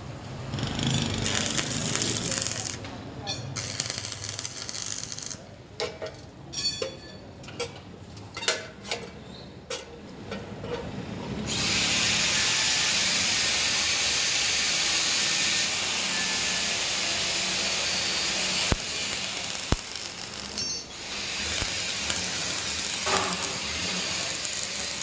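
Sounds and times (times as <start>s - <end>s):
welding hiss: 1.0s - 2.8s, 3.6s - 5.4s, 11.5s - 25.0s.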